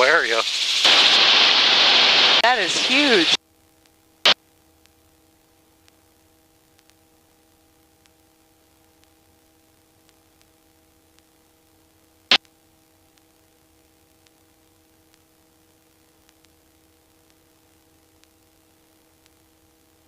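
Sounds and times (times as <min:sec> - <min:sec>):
faint electrical hum: 0:00.0 - 0:20.0
faint ticks: 0:04.8 - 0:20.0.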